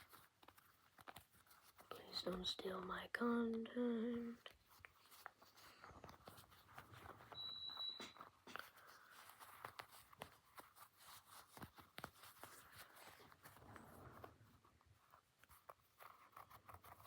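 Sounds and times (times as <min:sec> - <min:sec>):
brief high-pitched tone: 0:07.4 - 0:08.2.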